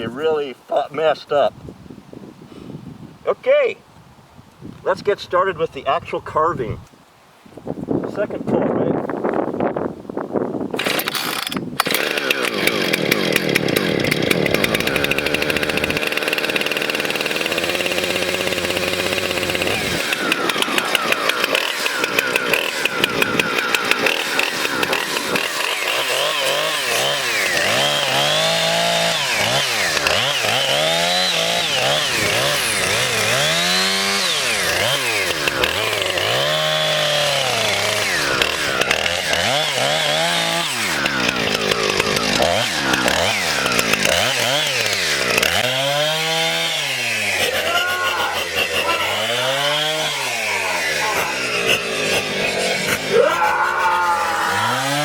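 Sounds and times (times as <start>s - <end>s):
chainsaw revving: 10.7s - 55.0s.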